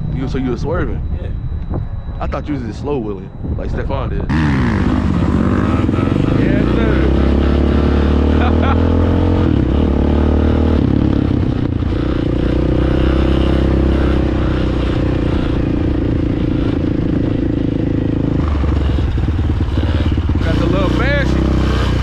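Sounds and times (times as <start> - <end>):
dirt bike engine idling: 3.7 - 8.9, 13.9 - 22.0.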